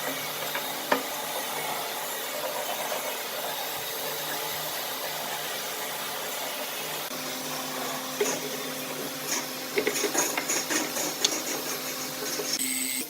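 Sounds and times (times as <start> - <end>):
electric power tool running: 6.7 - 13.0.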